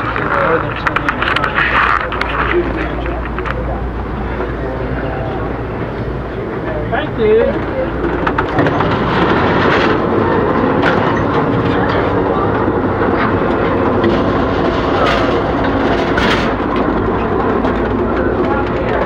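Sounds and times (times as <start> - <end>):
train cars rumbling on track: 0.0 - 19.0
sharp knocks and clanks: 8.0 - 19.0.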